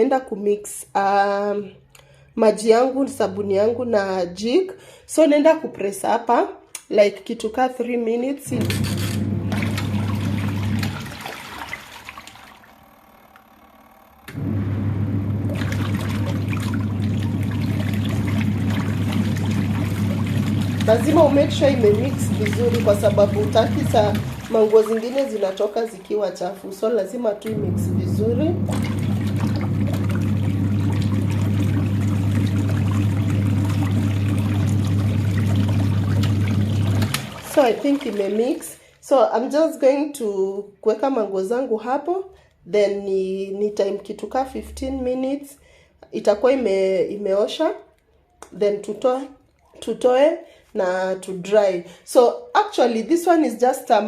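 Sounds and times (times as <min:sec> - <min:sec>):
washing machine motor hum: 0:08.4 - 0:38.6
churning water: 0:08.5 - 0:13.5, 0:14.3 - 0:38.8.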